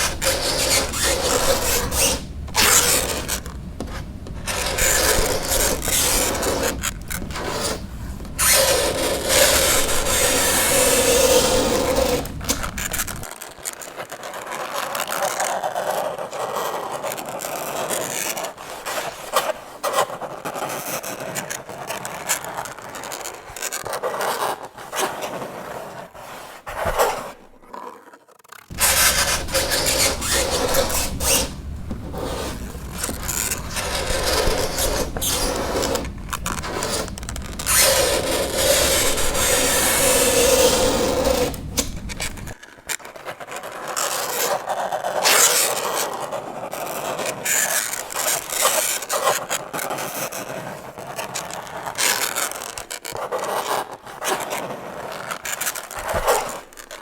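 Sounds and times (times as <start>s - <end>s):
fingernails scraping chalkboard: 0.0s - 13.3s, 17.6s - 28.1s, 28.7s - 42.6s.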